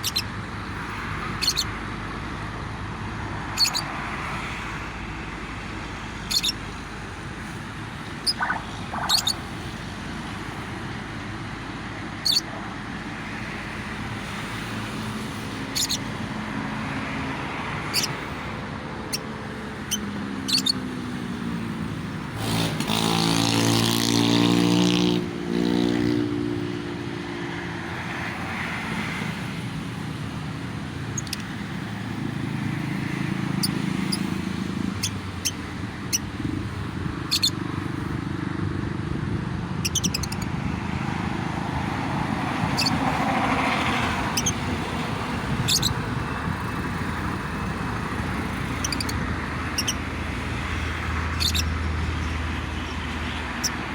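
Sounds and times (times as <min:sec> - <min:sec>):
road traffic: 0:00.0 - 0:53.9
vehicle passing with engine drone: 0:00.0 - 0:53.9
lovebird chirps: 0:01.4 - 0:01.7, 0:03.6 - 0:03.8, 0:06.3 - 0:06.6, 0:08.2 - 0:09.5, 0:19.9 - 0:20.8, 0:37.3 - 0:37.6, 0:45.7 - 0:46.0, 0:48.8 - 0:49.2, 0:49.8 - 0:50.0, 0:51.4 - 0:51.7.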